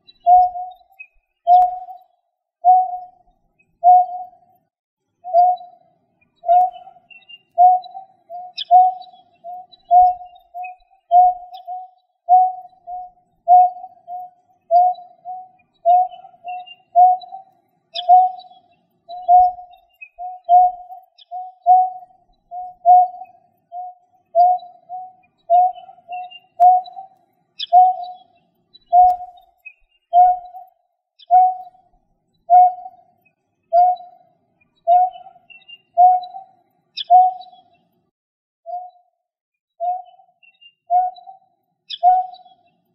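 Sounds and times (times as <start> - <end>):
faint higher chirps: 0.0 - 4.6, 5.2 - 37.9, 39.8 - 42.9.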